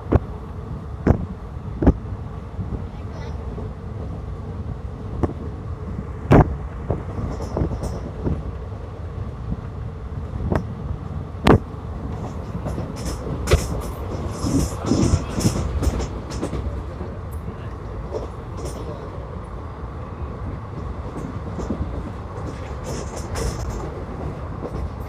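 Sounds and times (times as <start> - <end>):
train rumble inside coach: 0.0 - 25.0.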